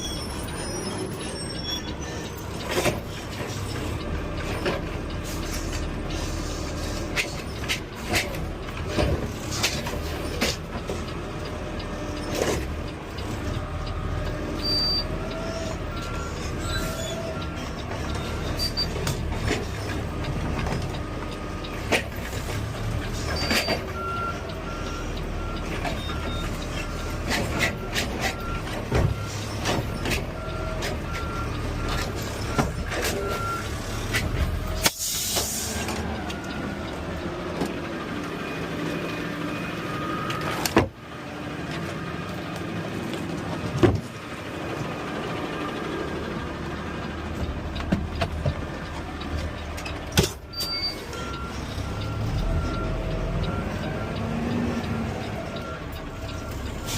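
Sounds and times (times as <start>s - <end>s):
air brake hiss: 34.8s - 35.9s
truck engine running: 41.0s - 56.9s.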